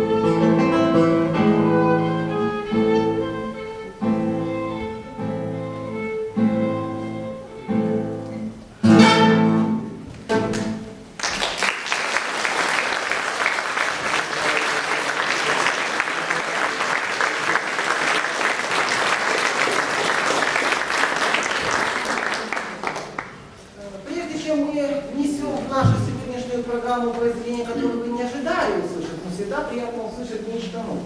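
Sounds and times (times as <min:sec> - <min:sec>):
violin and guitar chords: 0:00.0 - 0:11.1
audience applause: 0:10.5 - 0:23.5.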